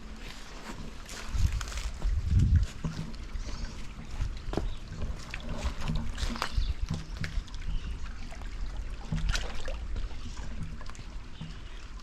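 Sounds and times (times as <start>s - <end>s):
footsteps crunching on stony ground: 0.0s - 7.4s
low microphone rumble: 0.0s - 11.4s.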